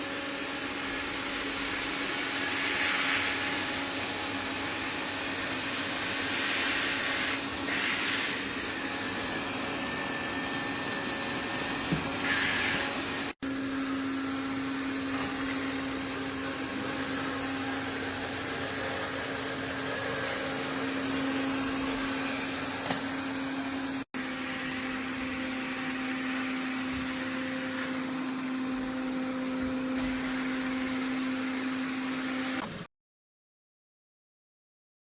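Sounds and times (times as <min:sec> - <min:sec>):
robot vacuum motor whirring: 0:02.2 - 0:24.0.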